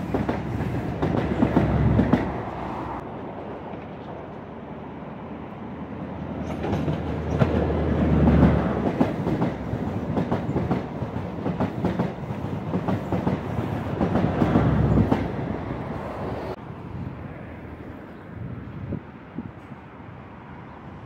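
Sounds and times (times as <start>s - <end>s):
wheels clickety-clack over rail joints: 0.0s - 16.6s
diesel locomotive engine: 0.0s - 21.0s
distant train: 0.0s - 21.0s.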